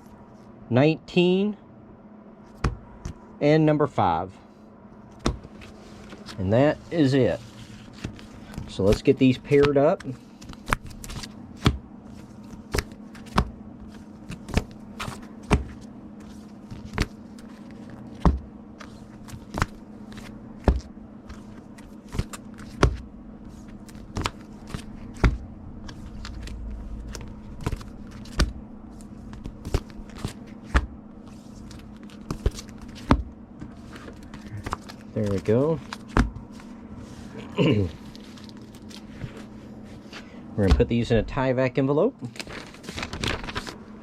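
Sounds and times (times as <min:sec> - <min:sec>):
taps and clicks of comic books: 0:02.6 - 0:03.2, 0:08.0 - 0:11.8, 0:12.5 - 0:13.5, 0:14.3 - 0:15.8, 0:18.1 - 0:23.0, 0:23.9 - 0:26.5, 0:27.1 - 0:28.6, 0:29.3 - 0:30.9, 0:31.7 - 0:36.4
low hum: 0:10.8 - 0:41.4
plastic rustling: 0:33.8 - 0:40.2, 0:42.2 - 0:43.9.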